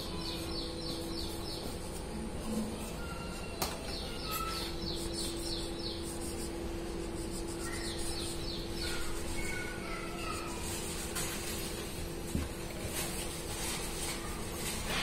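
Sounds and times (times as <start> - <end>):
birds chirping: 0.0 - 10.8
steady low hum: 0.0 - 15.0.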